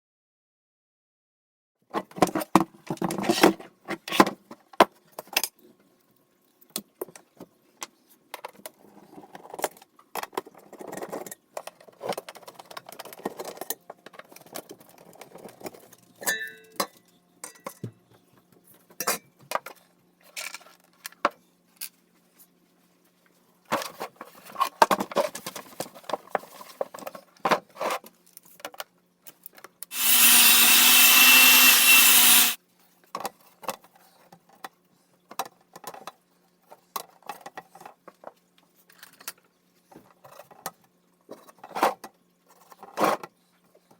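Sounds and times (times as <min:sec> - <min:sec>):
loud steady whirring: 0:29.9 - 0:32.6.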